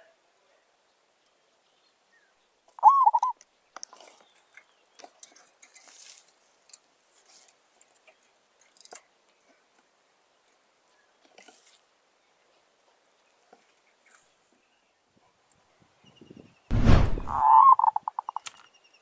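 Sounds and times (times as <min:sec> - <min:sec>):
dove wavering coo: 0:02.8 - 0:03.3, 0:17.3 - 0:18.4
faint clicks and rustles: 0:03.4 - 0:14.6.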